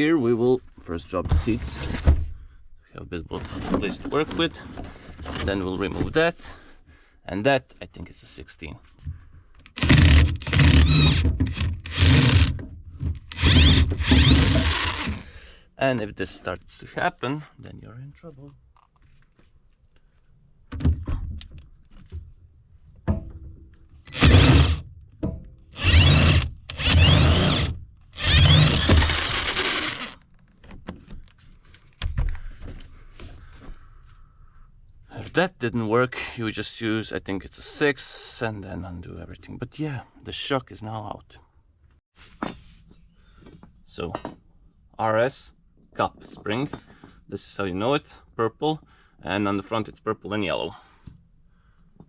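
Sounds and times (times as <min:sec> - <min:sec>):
impact wrench hammering: 0:13.3 - 0:15.2, 0:25.8 - 0:30.1.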